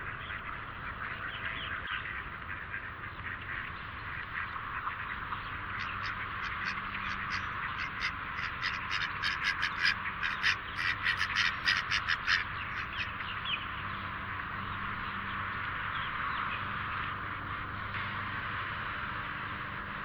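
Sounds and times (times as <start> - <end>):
ducks and waterbirds calling: 0.0 - 20.0.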